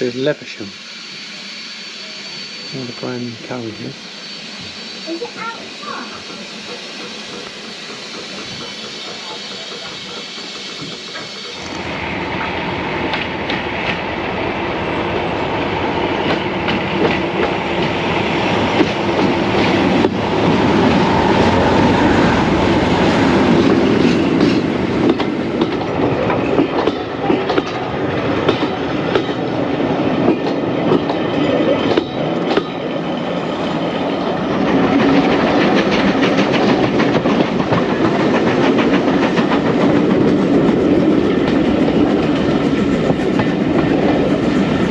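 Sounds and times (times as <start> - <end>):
train wheels clattering over track: 4.4 - 14.1, 16.1 - 44.9.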